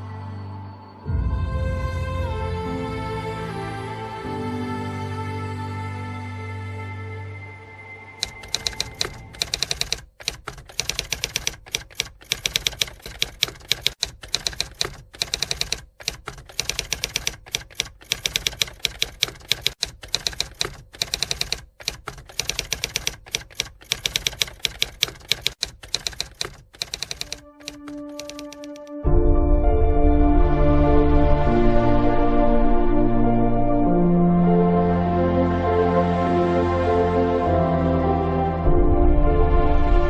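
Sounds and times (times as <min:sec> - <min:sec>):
typewriter keys clacking: 0:08.2 - 0:29.0.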